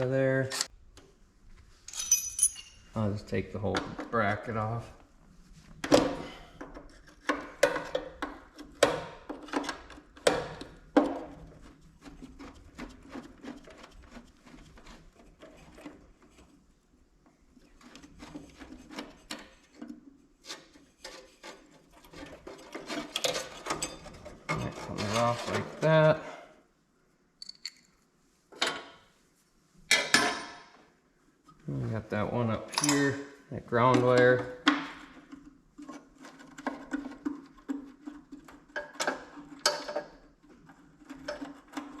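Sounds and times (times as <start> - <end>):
hand tools clinking on metal: 1.9 - 3.0, 32.6 - 33.2.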